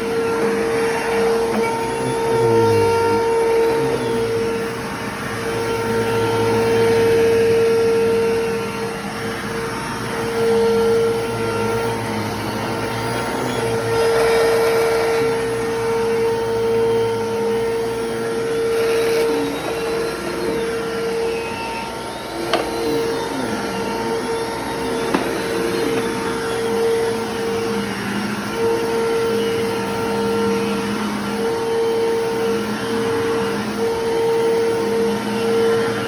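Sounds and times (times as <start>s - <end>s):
vacuum cleaner running: 0.0s - 36.0s.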